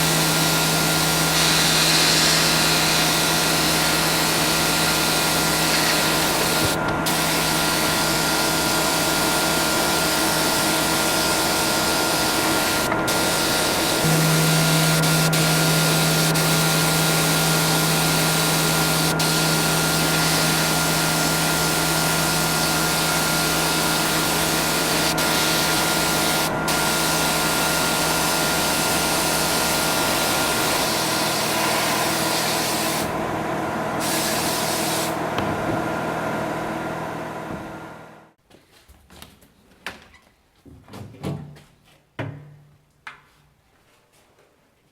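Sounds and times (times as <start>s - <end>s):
motor hum: 0.0s - 38.3s
compressed-air tool hissing: 0.3s - 33.1s.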